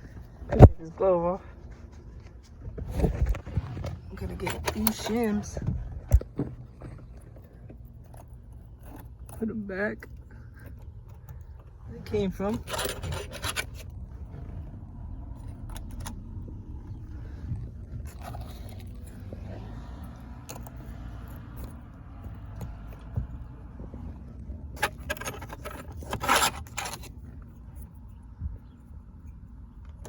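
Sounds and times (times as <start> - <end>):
steady low rumble: 0.0 - 24.9
small metal parts clinking: 6.8 - 13.9.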